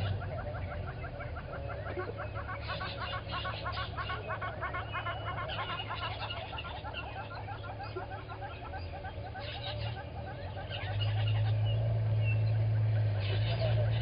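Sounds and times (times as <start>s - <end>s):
birds chattering: 0.0s - 14.0s.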